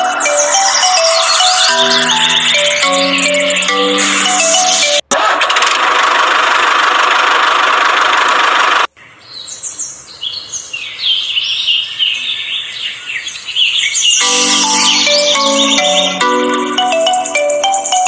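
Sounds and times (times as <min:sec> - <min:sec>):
small birds chirping: 0:09.1 - 0:16.6.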